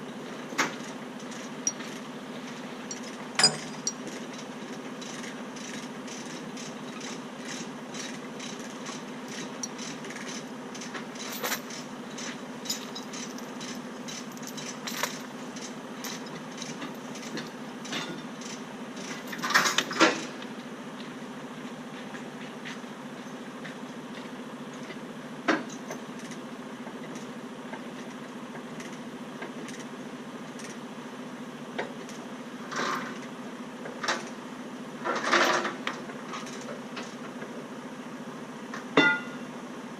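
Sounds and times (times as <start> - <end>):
light metallic clinks: 1.6 - 1.9, 2.9 - 4.2
metal clanks: 2.9 - 4.2.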